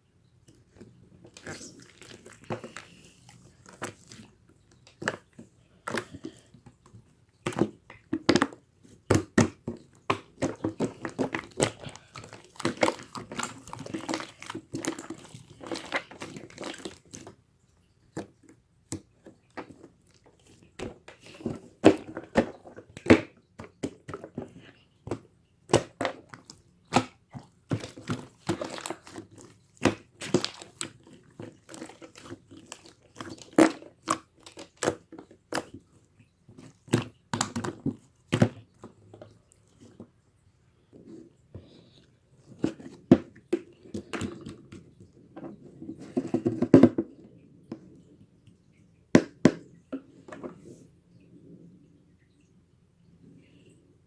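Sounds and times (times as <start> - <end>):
crinkling and crunching: 0.5 - 40.2.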